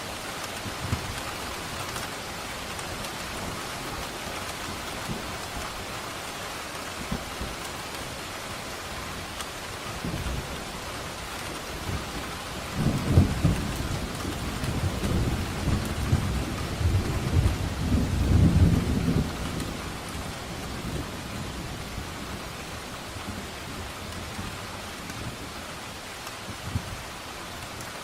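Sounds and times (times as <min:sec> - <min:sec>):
steady rain falling: 0:00.0 - 0:28.0
rolling thunder rumble: 0:11.8 - 0:22.6.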